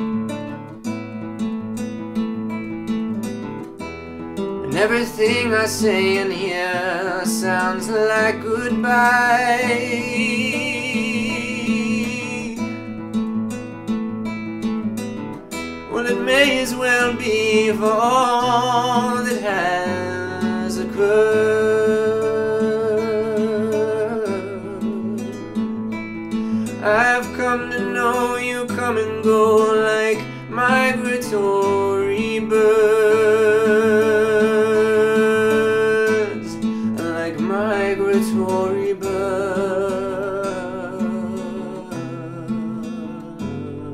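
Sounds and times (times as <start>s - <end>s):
acoustic guitar strumming: 0.0s - 43.9s
man singing: 4.6s - 13.2s, 15.8s - 25.9s, 26.5s - 43.9s.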